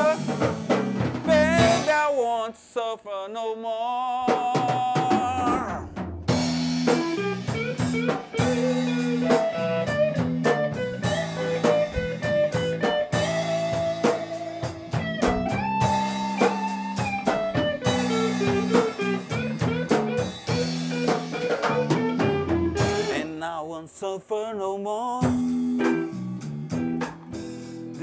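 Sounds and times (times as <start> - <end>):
blues band playing: 0.0 - 2.1, 4.4 - 23.4, 25.2 - 28.0
drum kit: 0.0 - 2.2, 4.3 - 23.4, 25.2 - 28.0
electric guitar lead: 6.3 - 23.2, 25.3 - 28.0.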